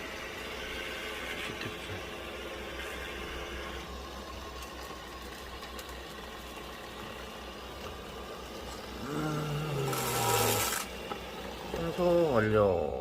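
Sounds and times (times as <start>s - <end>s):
robot vacuum cleaner humming: 0.0s - 13.0s.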